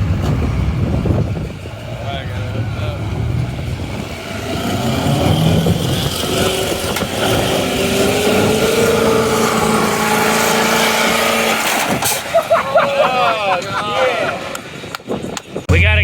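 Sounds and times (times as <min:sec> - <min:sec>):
off-road engine revving hard: 0:00.0 - 0:12.8.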